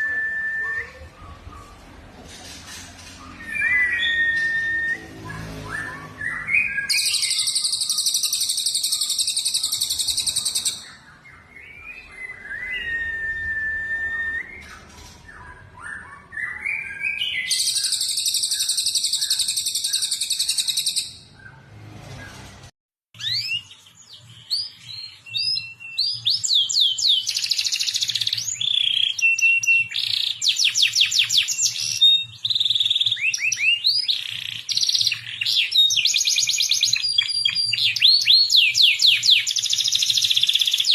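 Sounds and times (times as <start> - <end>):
bird whistles: 0.0 - 1.7, 3.0 - 11.0, 11.6 - 21.6
songbirds trilling: 0.0 - 21.6.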